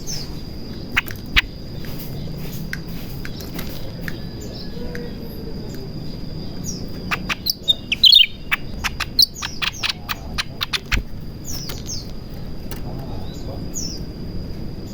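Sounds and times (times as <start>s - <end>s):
bird chirps and clicks: 0.7s - 4.2s, 6.9s - 13.0s.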